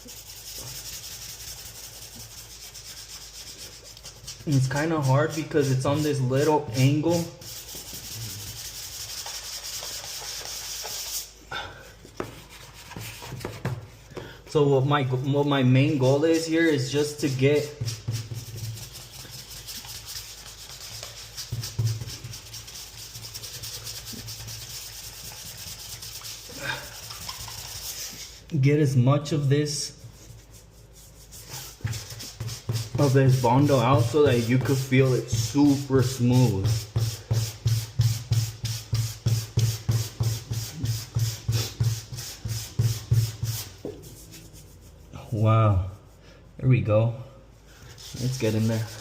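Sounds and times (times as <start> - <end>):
hand sanding strokes: 0.0 - 11.4, 12.2 - 13.6, 14.8 - 28.5, 29.7 - 46.6, 47.7 - 49.0.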